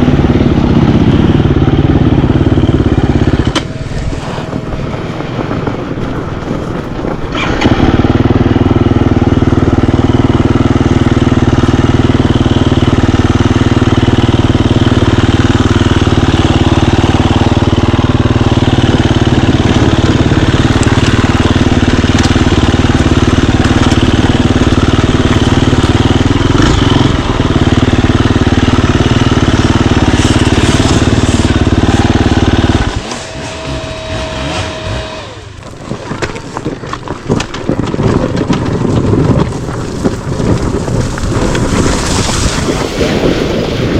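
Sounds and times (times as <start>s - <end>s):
motorcycle engine running loud: 0.0s - 43.9s.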